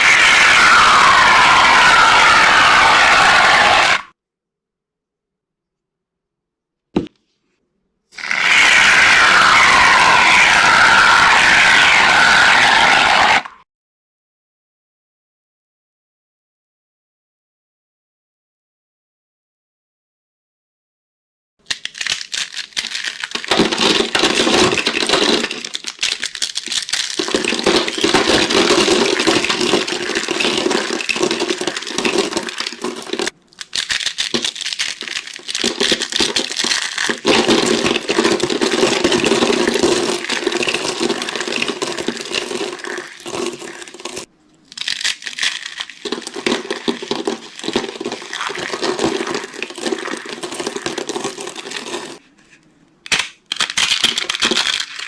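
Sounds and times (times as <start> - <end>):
dry soap crunching: 8.2 - 13.0, 21.6 - 52.2.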